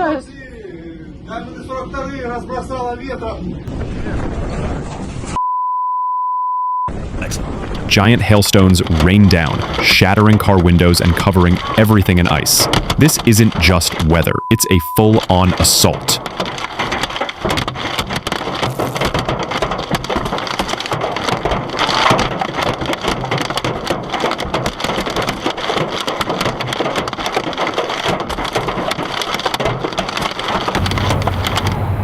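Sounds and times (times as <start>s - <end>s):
steady low rumble: 7.2s - 15.3s, 30.8s - 32.0s
hail clattering on hard surfaces: 7.6s - 14.2s, 15.4s - 32.0s.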